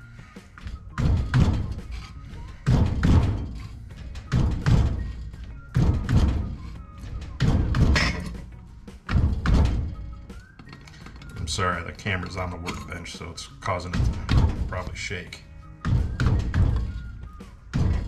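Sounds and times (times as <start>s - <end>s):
metal shrinker heavy double thuds: 0.7s - 10.2s, 13.8s - 15.2s, 15.8s - 18.0s.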